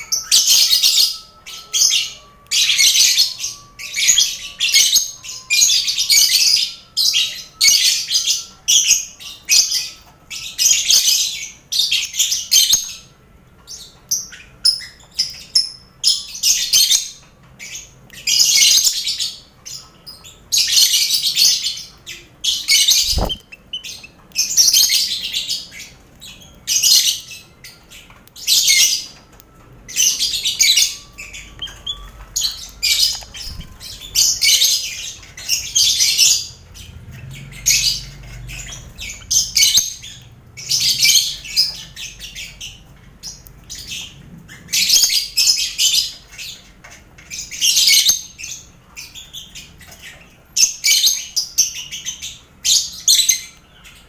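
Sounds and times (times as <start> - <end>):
lovebirds chattering calls: 13.7 - 54.0
finches calling: 22.2 - 25.9.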